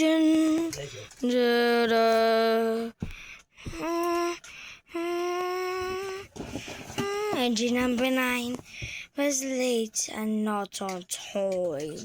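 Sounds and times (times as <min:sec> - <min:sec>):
person singing long notes: 0:03.7 - 0:06.3.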